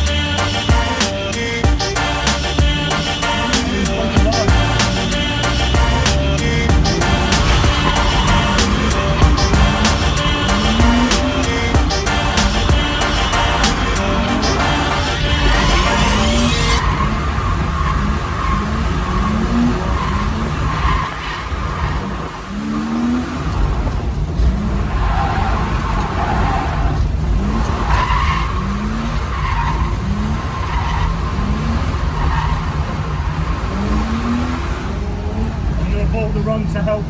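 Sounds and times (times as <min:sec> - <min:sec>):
car engine revving hard: 0:00.0 - 0:36.5
tyres skidding: 0:00.0 - 0:37.0.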